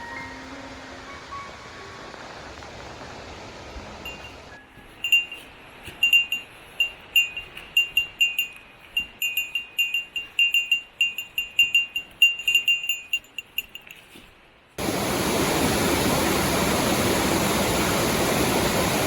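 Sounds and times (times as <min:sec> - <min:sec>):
small metal bell tinkling: 0:04.1 - 0:14.2.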